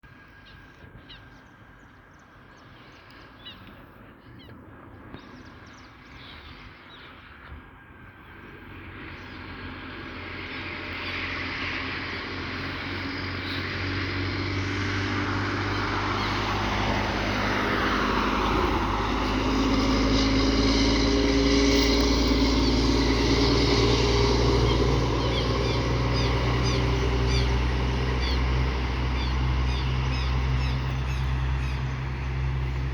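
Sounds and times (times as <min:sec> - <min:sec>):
truck engine approaching: 0:08.2 - 0:32.9.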